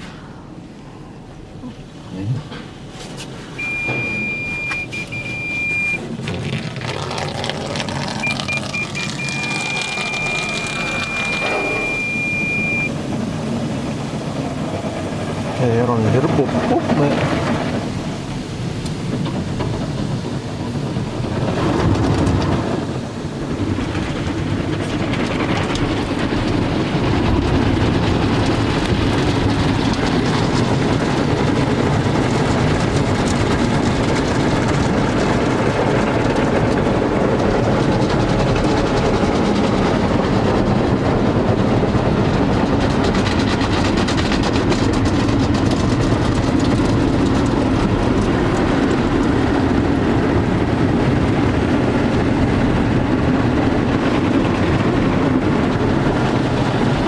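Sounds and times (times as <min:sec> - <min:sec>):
car wash machinery rushing: 0:00.0 - 0:57.0.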